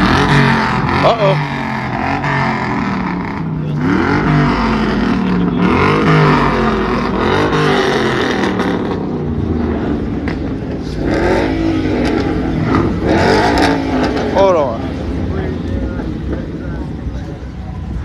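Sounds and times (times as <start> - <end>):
car engines revving hard: 0.0 - 18.0
engines running: 0.0 - 18.0.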